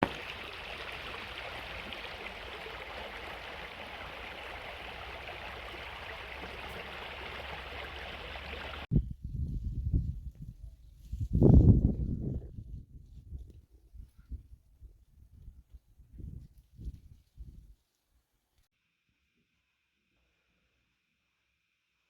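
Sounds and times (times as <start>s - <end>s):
flowing water rushing: 0.0s - 8.9s.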